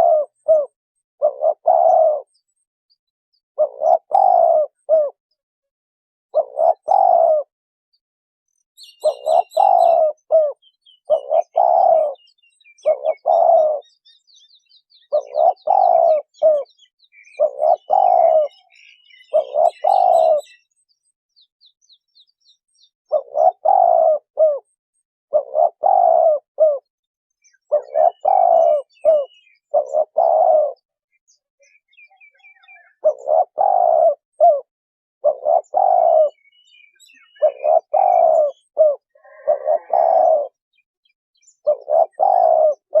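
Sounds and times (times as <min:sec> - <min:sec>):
dove cooing: 0:00.0 - 0:02.4, 0:03.6 - 0:05.2, 0:06.3 - 0:07.5, 0:08.8 - 0:14.0, 0:15.0 - 0:20.6, 0:23.1 - 0:31.0, 0:32.2 - 0:40.8, 0:41.6 - 0:43.0
small birds chirping: 0:00.0 - 0:05.4, 0:06.3 - 0:43.0.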